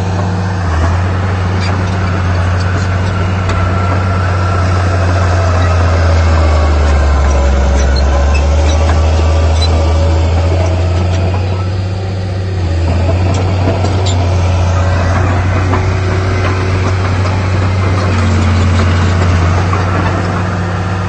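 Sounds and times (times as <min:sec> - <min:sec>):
heavy diesel engine droning: 0:00.0 - 0:21.0.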